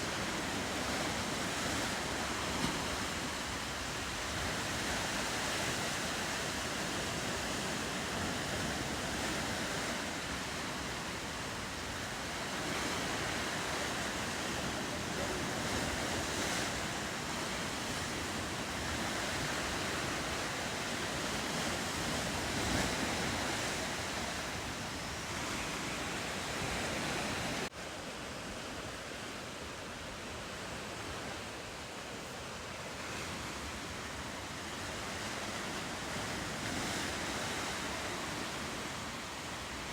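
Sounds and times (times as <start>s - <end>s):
wind on microphone: 0.0s - 27.7s
ocean surf washing: 0.0s - 39.9s.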